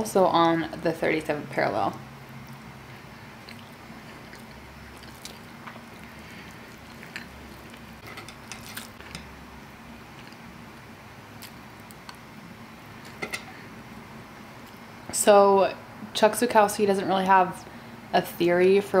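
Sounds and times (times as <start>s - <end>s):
person chewing food: 3.3s - 9.1s, 10.1s - 10.5s.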